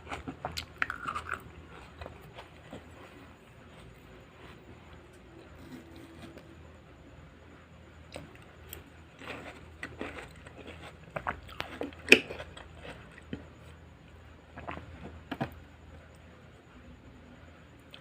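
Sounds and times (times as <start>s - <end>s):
chewing crunchy vegetables: 0.0s - 6.4s, 8.1s - 16.1s.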